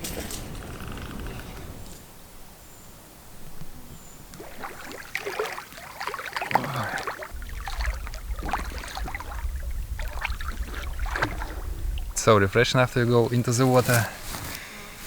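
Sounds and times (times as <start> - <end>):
water splashing and sloshing: 4.3 - 14.6
low rumble: 7.3 - 12.2.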